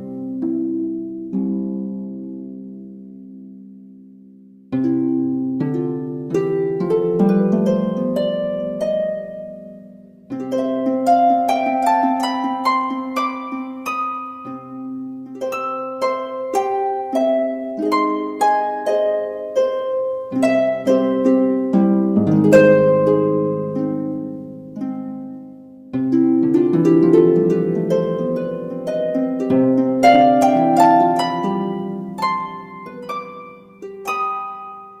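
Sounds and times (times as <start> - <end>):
plucked harp melody: 0.0 - 35.0.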